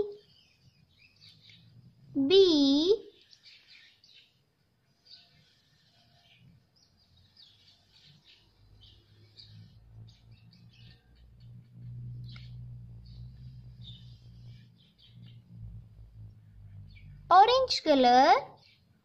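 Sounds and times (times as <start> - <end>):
low hum: 9.7 - 17.3.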